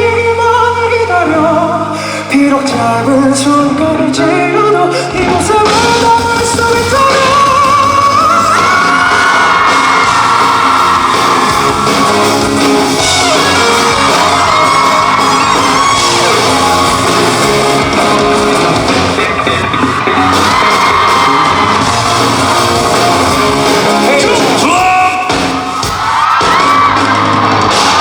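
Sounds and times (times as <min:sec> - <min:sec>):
rock band playing: 0:00.0 - 0:28.0
audience yelling: 0:05.7 - 0:28.0.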